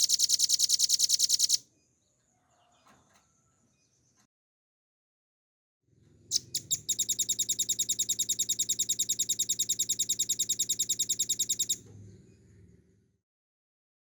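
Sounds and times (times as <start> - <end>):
bird singing rapid trill: 0.0 - 1.6, 6.3 - 11.8
faint low hum: 6.0 - 13.2.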